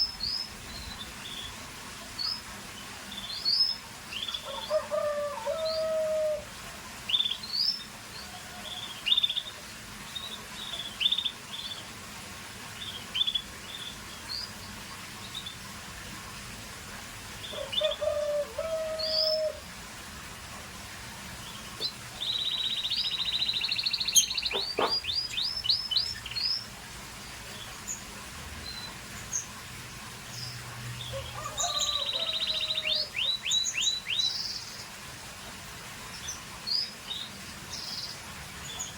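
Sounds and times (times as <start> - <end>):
canary chirping: 21.8 - 26.6
canary rapid trill: 22.4 - 25.3.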